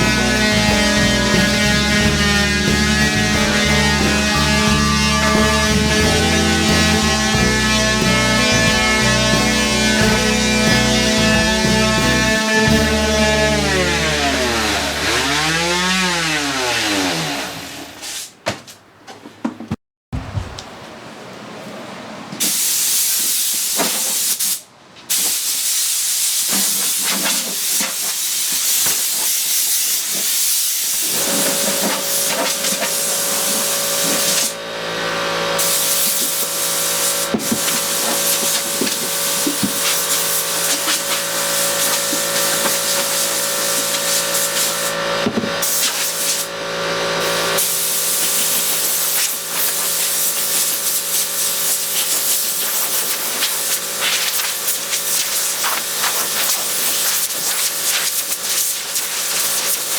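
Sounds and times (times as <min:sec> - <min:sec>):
loud hissing spray: 0:22.4 - 0:34.6, 0:35.6 - 0:45.0, 0:45.6 - 0:46.5, 0:47.6 - 0:59.9
machine hum: 0:31.1 - 0:49.5.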